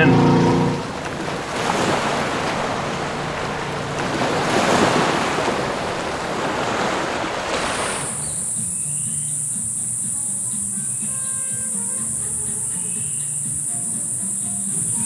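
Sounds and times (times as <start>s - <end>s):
soft music: 0.0s - 4.7s, 8.1s - 15.0s
high-pitched buzz: 0.0s - 4.8s
water rushing past boat hull: 0.0s - 9.0s
wind on microphone: 0.7s - 8.5s.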